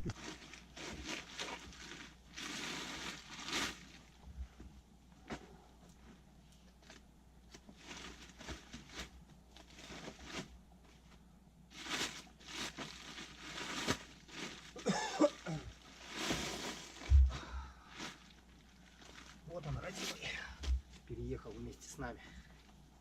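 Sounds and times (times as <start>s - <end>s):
rustling and handling noise: 0.0s - 23.0s
throat clearing cough: 14.8s - 15.7s.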